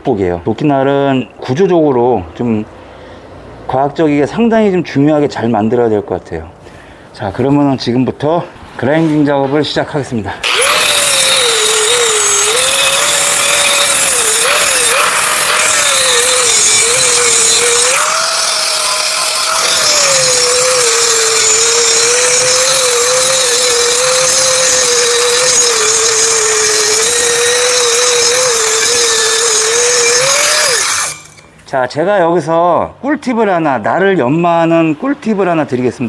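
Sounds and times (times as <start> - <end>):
angle grinder grinding steel: 10.4 - 31.6.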